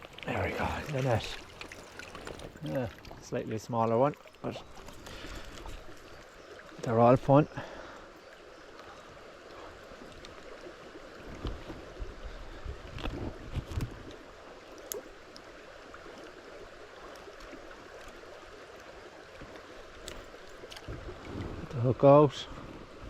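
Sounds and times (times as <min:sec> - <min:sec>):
knocks and splashes: 0:00.0 - 0:03.3, 0:19.4 - 0:21.8
stream water running over rocks: 0:00.0 - 0:23.0.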